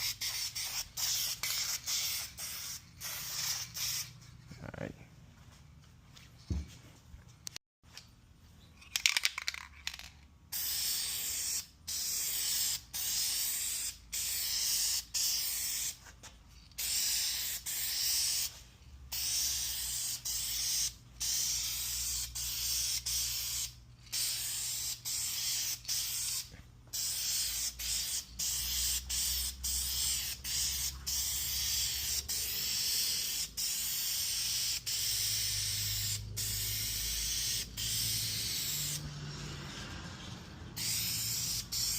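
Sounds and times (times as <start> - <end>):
spray can hissing: 0.0 - 4.2, 10.5 - 16.1, 16.7 - 39.0, 40.8 - 41.9.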